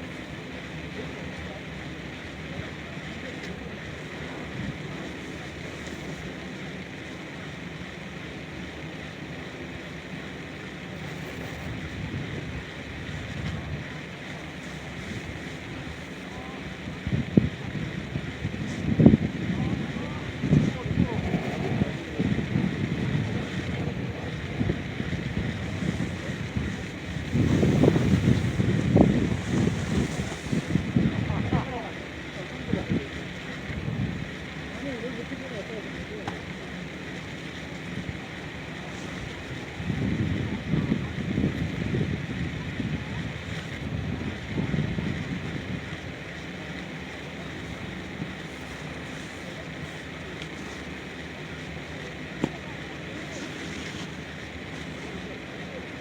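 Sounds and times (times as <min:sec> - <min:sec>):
steady outdoor hiss: 0:00.0 - 0:56.0
wind buffeting microphone: 0:11.1 - 0:16.0, 0:16.6 - 0:31.8, 0:32.6 - 0:34.6, 0:37.9 - 0:51.1.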